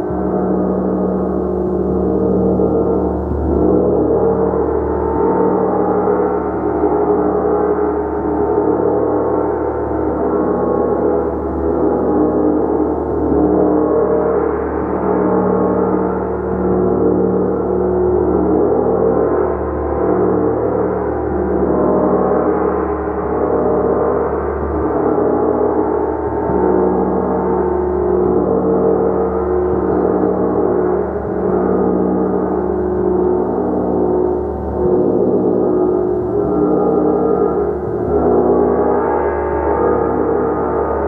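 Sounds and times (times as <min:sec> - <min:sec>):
gong drone: 0:00.0 - 0:41.0.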